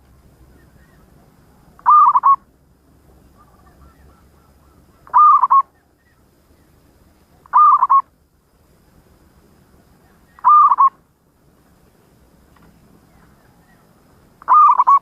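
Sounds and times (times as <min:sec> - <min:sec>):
dove cooing: 0:00.5 - 0:02.4, 0:03.2 - 0:06.3, 0:07.4 - 0:08.1, 0:10.0 - 0:11.0, 0:13.0 - 0:15.0.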